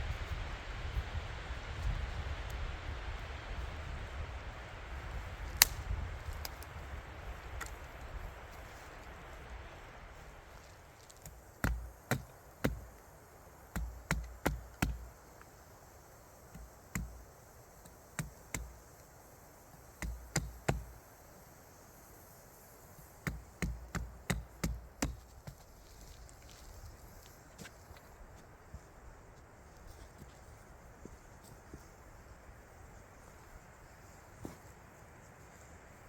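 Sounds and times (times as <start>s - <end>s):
tool knocking on wood: 13.7s - 15.1s.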